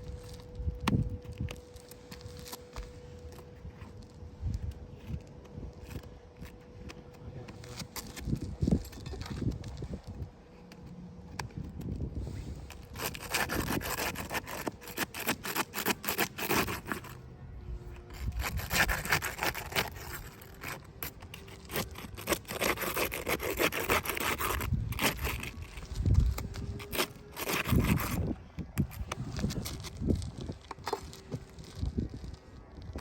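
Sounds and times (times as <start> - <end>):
rapid scraping and rubbing strokes: 12.2 - 17.3, 17.9 - 32.6.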